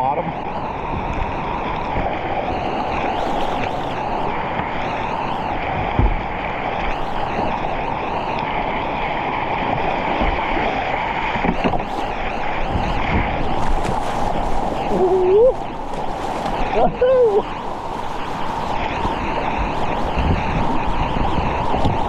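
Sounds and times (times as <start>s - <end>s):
water splashes: 0.0s - 22.0s
short dull thump: 5.9s - 6.2s.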